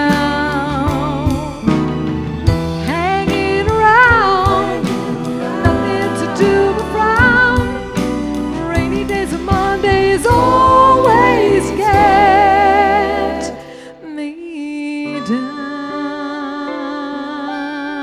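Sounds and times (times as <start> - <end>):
woman singing with vibrato: 0.0 - 1.8, 2.8 - 18.0
live band music: 0.0 - 14.0
soft keyboard chords: 0.0 - 14.1.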